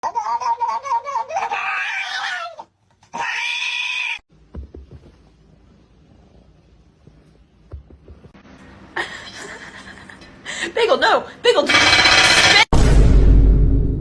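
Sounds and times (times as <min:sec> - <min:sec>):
animal high-pitched cries: 0:00.0 - 0:04.2.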